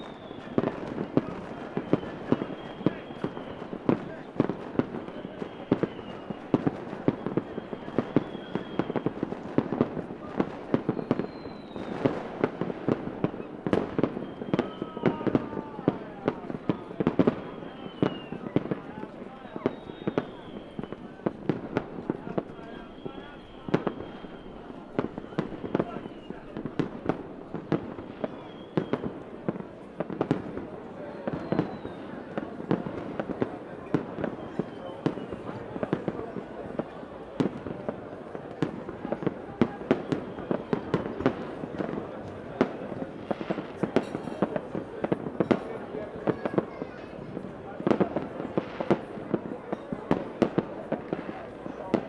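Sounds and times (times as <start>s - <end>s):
faint high fireworks whistles: 0.0s - 52.0s
fireworks bangs and pops: 0.0s - 52.0s.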